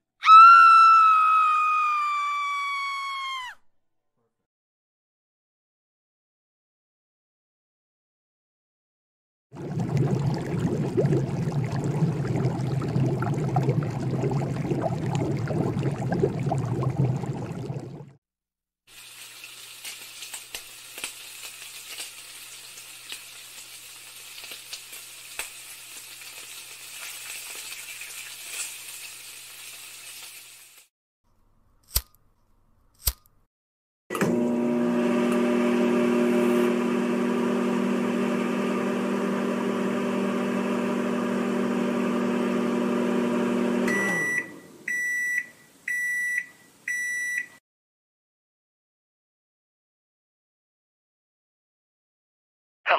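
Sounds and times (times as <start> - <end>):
water boiling: 9.6 - 18.2, 18.9 - 30.9
lighter clicks: 33.0 - 33.3
microwave oven humming: 34.2 - 45.2
microwave beeps: 43.8 - 47.6.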